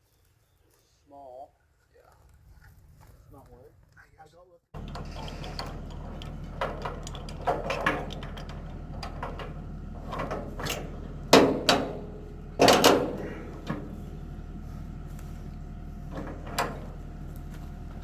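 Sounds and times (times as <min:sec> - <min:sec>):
chain clanking against steel: 0:04.8 - 0:13.9
truck engine idling: 0:04.8 - 0:18.0.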